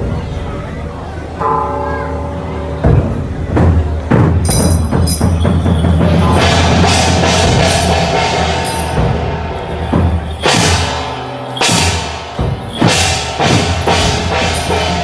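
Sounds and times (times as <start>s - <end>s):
steady drumming: 3.6s - 15.0s
big ringing crashes: 4.3s - 15.0s.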